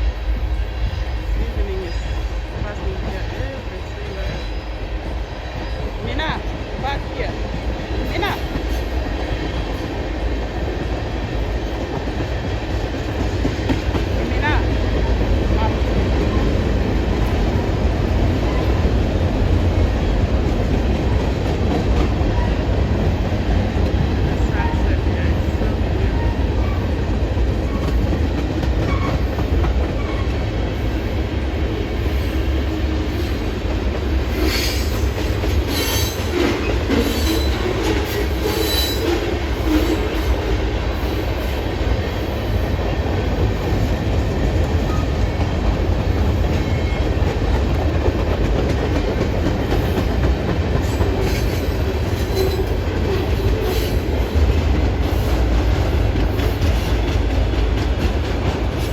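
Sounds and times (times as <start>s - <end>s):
train rumbling past: 0.0s - 58.9s
train wheels clicking and squealing: 26.0s - 30.9s, 34.3s - 41.6s, 44.6s - 58.9s.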